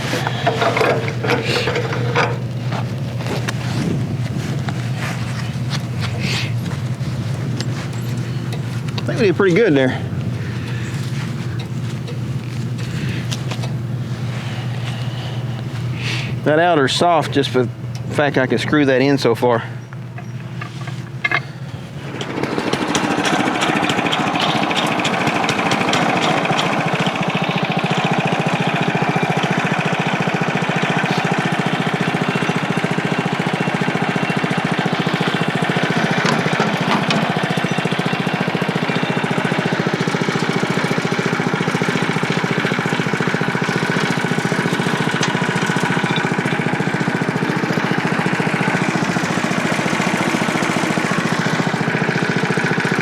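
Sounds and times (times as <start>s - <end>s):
sawmill gasoline engine droning: 0.0s - 53.0s.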